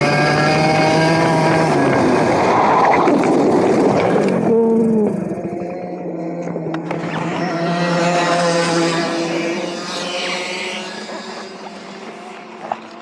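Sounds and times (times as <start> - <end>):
kart engine running: 0.0 - 13.0.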